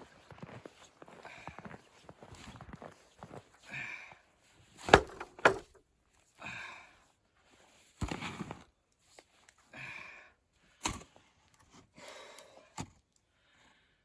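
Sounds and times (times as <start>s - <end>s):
hand tool strikes thudding: 4.9s - 5.8s.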